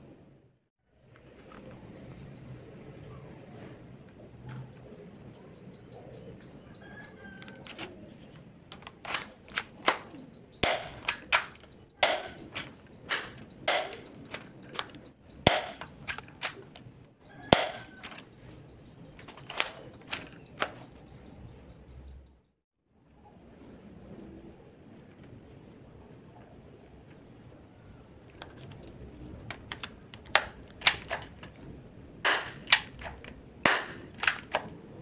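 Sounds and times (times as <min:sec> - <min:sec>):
airsoft gun snaps and clicks: 0:08.7 - 0:16.8, 0:29.5 - 0:31.6, 0:32.2 - 0:34.8.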